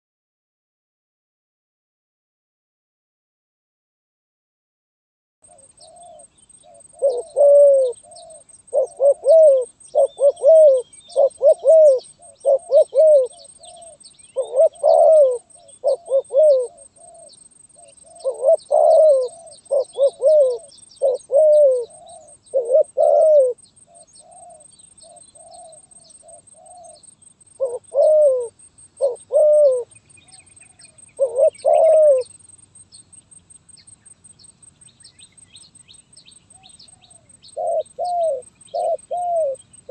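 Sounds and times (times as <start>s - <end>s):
dove cooing: 5.5s - 32.4s, 36.5s - 39.9s.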